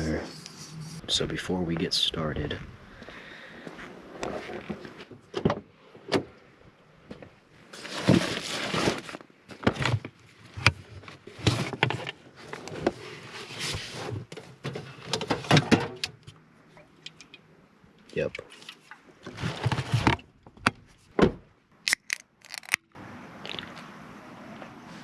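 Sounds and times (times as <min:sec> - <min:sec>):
rustling and scraping: 0:03.7 - 0:05.3, 0:07.2 - 0:15.9, 0:18.4 - 0:20.3.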